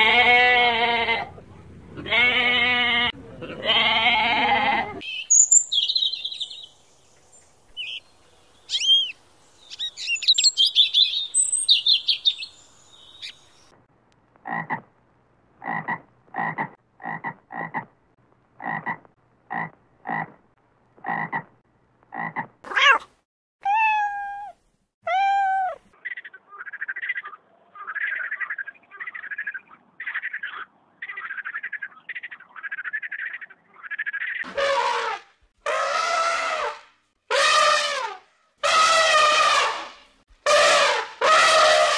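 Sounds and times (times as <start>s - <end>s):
songbird chirping and trilling: 5.0s - 13.8s, 25.2s - 34.5s
cat meowing: 22.7s - 25.8s.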